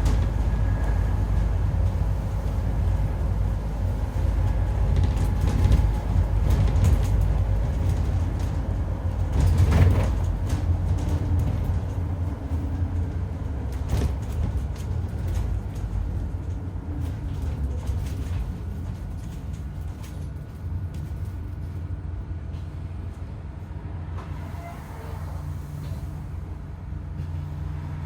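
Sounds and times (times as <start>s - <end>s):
bus engine low rumble: 0.0s - 28.0s.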